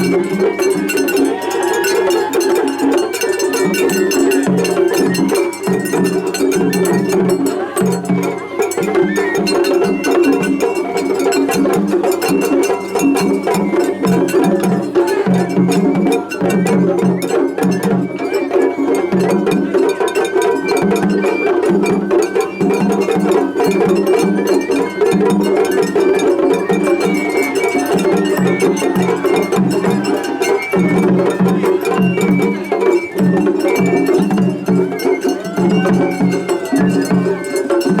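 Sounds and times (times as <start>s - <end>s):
drum rhythm: 0.0s - 38.0s
high flute line: 8.4s - 37.8s.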